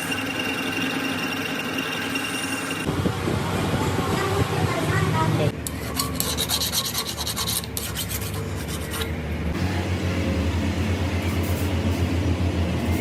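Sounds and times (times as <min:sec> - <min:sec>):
file scraping metal: 0:05.6 - 0:09.2
low machine hum: 0:09.1 - 0:13.0.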